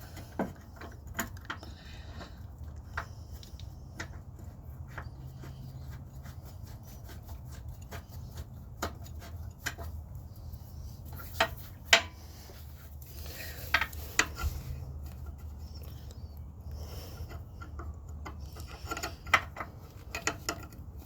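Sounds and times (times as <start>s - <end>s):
rubbing: 2.2s - 16.3s
metal tools clinking on engine: 17.0s - 21.0s.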